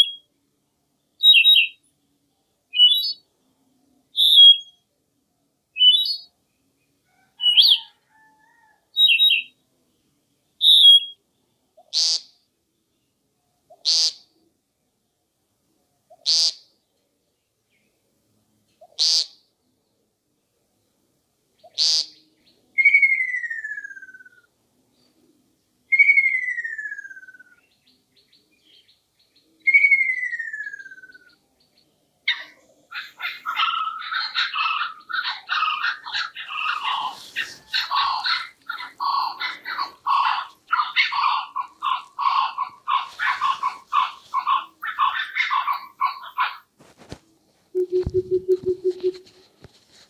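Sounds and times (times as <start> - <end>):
kookaburra cackling: 7.4 - 7.9, 11.8 - 12.3, 13.7 - 14.3, 16.1 - 16.6, 18.8 - 19.4, 21.7 - 22.2, 32.3 - 46.7
buzzy bird call: 21.6 - 22.2, 32.3 - 46.7, 47.8 - 49.4
downward sliding whistled calls: 22.8 - 24.4, 25.9 - 27.6, 29.6 - 31.3.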